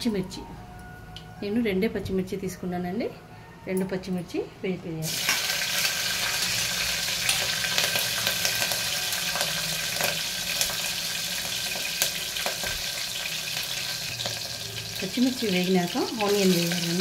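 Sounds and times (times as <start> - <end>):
chillies sizzling in hot oil: 5.0 - 17.0
oil crackles and pops: 5.1 - 14.6.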